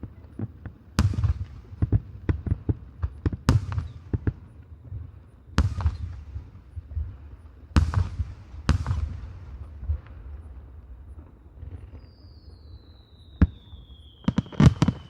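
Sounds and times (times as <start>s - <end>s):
sharp firework cracks: 5.6s - 6.4s
firework shells booming: 5.6s - 7.0s, 7.7s - 10.4s.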